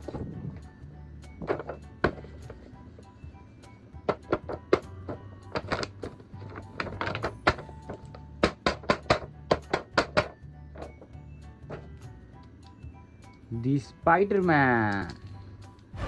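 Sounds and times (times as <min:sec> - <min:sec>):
background music with bass: 0:00.0 - 0:16.0
plastic clicks and knocks: 0:01.4 - 0:02.6, 0:04.0 - 0:11.1.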